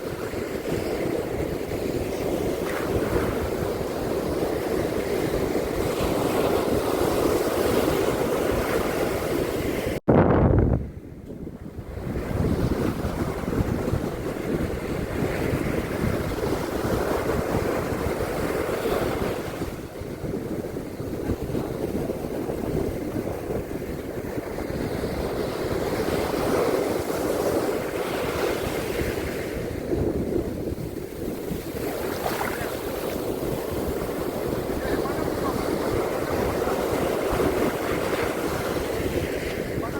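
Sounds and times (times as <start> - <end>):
surf washing on beach: 0.0 - 10.0, 11.0 - 39.9
wind buffeting microphone: 0.0 - 39.9.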